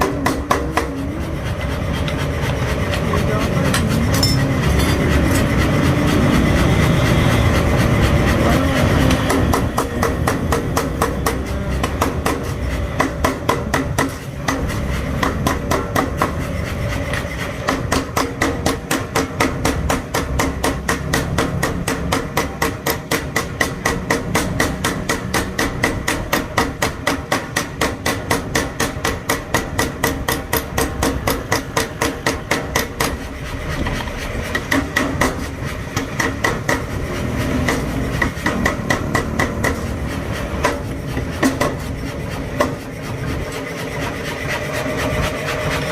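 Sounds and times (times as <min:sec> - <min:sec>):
power hammer pounding hot steel: 0:00.0 - 0:45.9.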